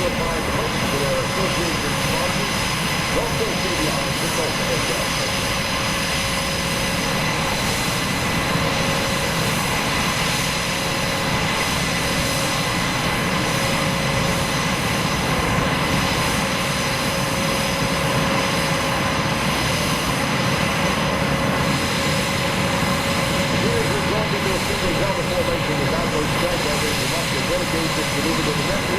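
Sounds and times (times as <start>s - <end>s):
aircraft engine drone: 0.0s - 28.9s.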